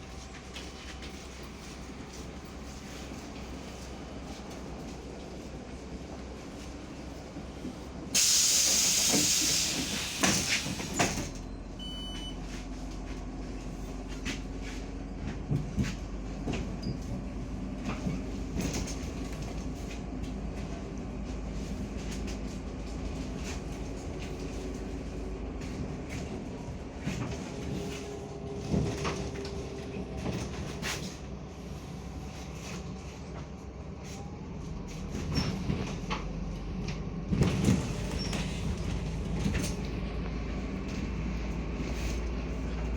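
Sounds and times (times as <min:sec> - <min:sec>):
bus engine drone: 0:00.0 - 0:42.9
compressed air hiss: 0:08.2 - 0:10.7
short beep: 0:11.4 - 0:12.4.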